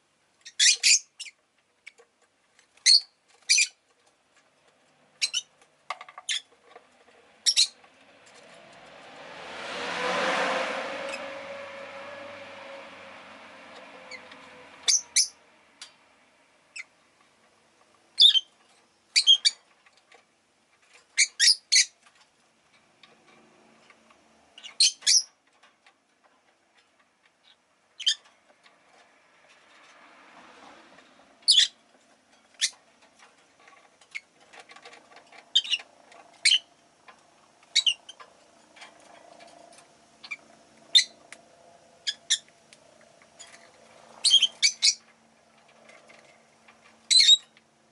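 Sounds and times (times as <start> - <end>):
lovebirds chirping shrilly: 0.4 - 1.4, 5.2 - 5.5, 7.4 - 7.8, 14.1 - 15.4, 18.2 - 18.5, 21.2 - 21.9, 24.6 - 25.3, 31.5 - 31.8, 35.5 - 36.7, 37.8 - 38.1, 40.2 - 41.2, 44.2 - 45.0, 47.1 - 47.5.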